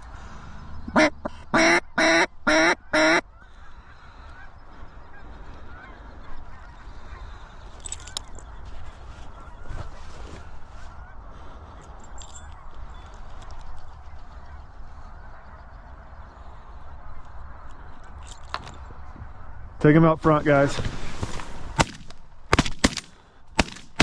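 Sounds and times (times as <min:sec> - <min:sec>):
distant waterfowl calls: 0:00.0 - 0:22.0
loud goose honks: 0:00.9 - 0:04.5.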